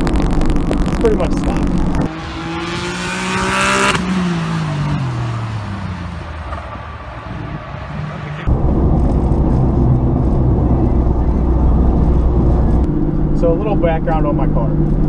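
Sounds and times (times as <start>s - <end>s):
car engine passing trackside: 2.0s - 15.0s
low engine drone inside cabin: 8.5s - 15.0s.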